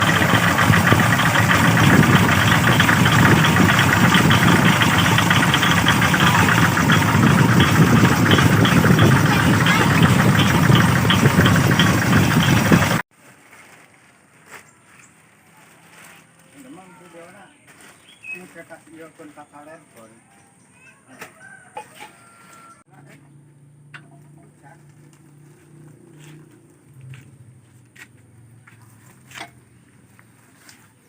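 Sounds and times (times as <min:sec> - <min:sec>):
single-cylinder diesel engine clattering: 0:00.0 - 0:13.1.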